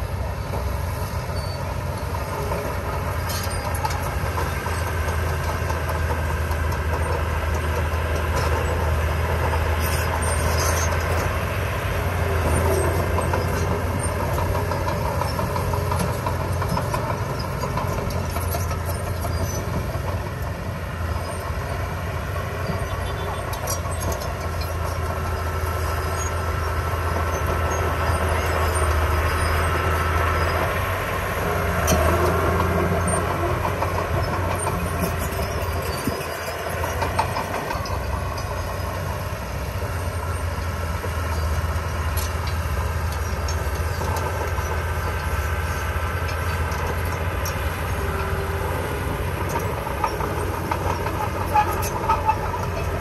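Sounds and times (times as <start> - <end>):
heavy diesel engine humming: 0.0 - 53.0.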